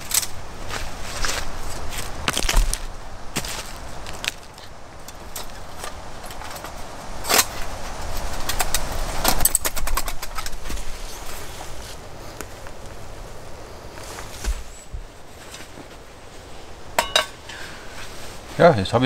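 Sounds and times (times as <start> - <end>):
dry wood snapping: 0.0 - 0.4, 2.0 - 10.8.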